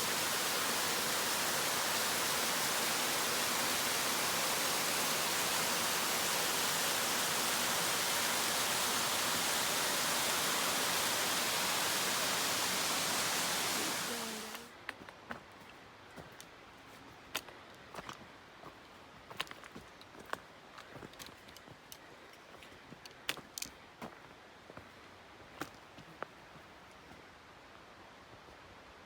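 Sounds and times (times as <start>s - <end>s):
waterfall rushing: 0.0s - 14.7s.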